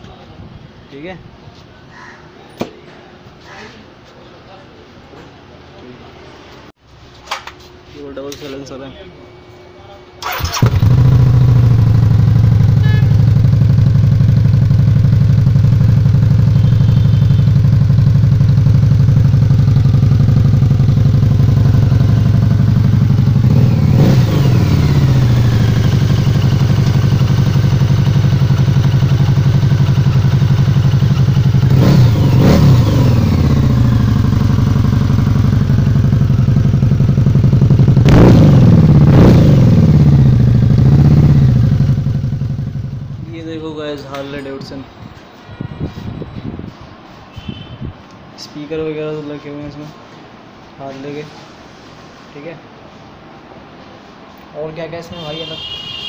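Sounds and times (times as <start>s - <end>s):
motorcycle engine revving: 10.2s - 43.6s
motorcycle engine idling: 10.2s - 43.9s.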